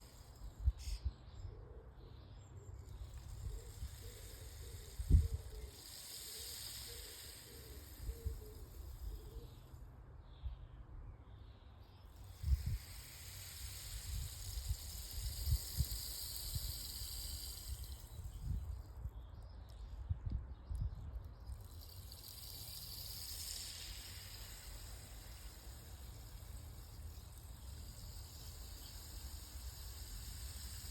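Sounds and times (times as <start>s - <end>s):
rainstick beads trickling: 0.0s - 1.0s, 2.8s - 9.7s, 12.2s - 18.8s, 21.3s - 30.9s.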